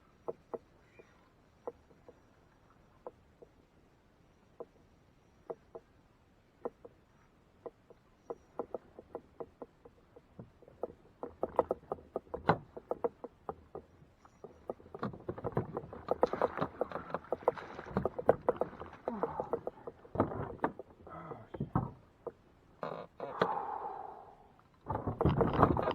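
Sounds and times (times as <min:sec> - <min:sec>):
water lapping against kayak hull: 0:06.6 - 0:23.7, 0:24.8 - 0:25.9
water splashing: 0:14.7 - 0:20.8.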